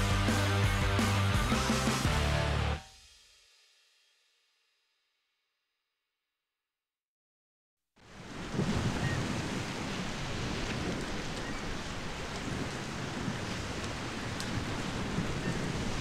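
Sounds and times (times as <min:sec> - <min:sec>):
ocean surf breaking: 0:08.0 - 0:16.0.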